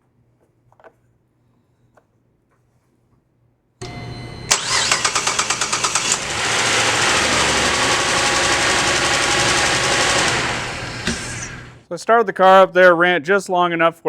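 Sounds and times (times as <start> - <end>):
car engine starting and idling: 3.8 - 11.8.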